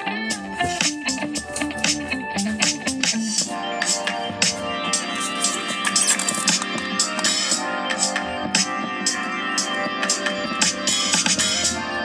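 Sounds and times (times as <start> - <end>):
music with guitar on car radio: 0.0 - 12.0.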